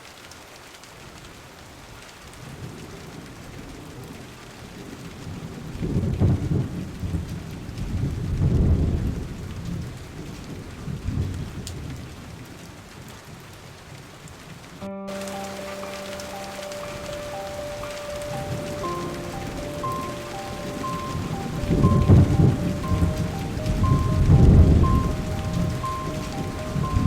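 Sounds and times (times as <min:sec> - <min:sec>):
steady rain falling: 0:00.0 - 0:27.0
rolling thunder: 0:05.4 - 0:10.0, 0:17.8 - 0:27.0.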